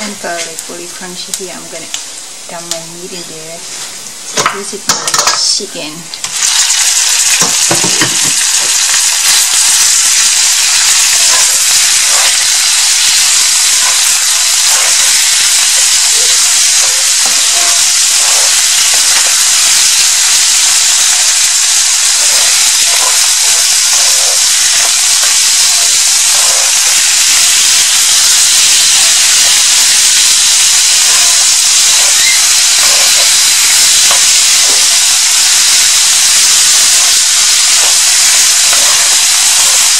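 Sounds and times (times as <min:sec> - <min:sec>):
chicken sizzling in hot oil: 0:03.8 - 0:39.9
wooden spoon scraping and tapping: 0:09.3 - 0:21.2, 0:22.2 - 0:27.9, 0:36.4 - 0:39.9.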